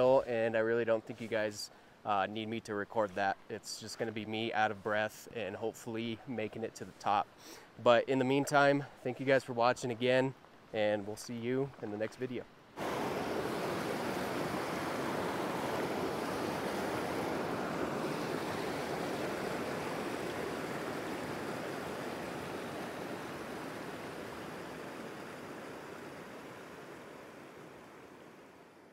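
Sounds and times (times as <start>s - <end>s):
creek water rushing: 12.6s - 28.9s.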